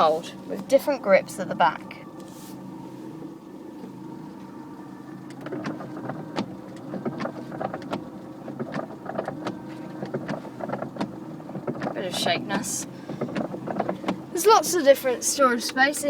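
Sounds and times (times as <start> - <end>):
engine humming: 0.0 - 16.0
irregular clicks and rattles: 5.2 - 14.4.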